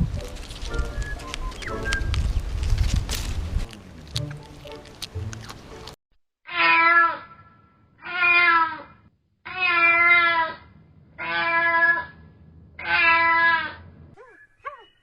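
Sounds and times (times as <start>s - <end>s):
cat meowing: 6.5s - 7.4s, 8.0s - 8.9s, 9.5s - 10.6s, 11.2s - 12.2s, 12.8s - 13.8s.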